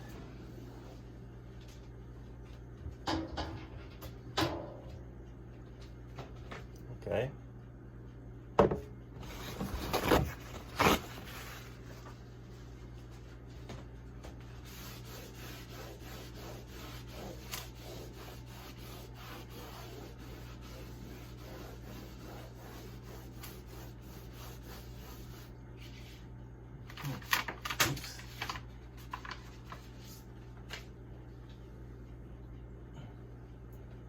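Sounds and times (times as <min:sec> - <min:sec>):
pad scrubbing fridge panel: 0:14.5 - 0:26.2.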